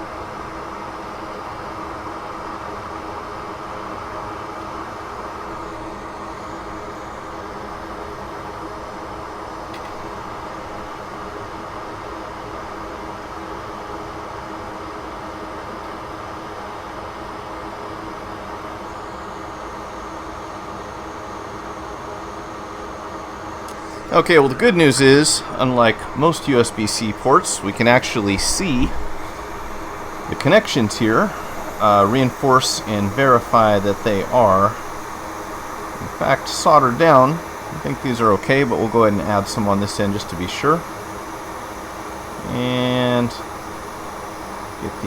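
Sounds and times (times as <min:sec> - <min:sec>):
faint hum: 0:00.0 - 0:45.0
fan airflow hiss: 0:00.0 - 0:45.0
faint low hum: 0:23.6 - 0:45.0.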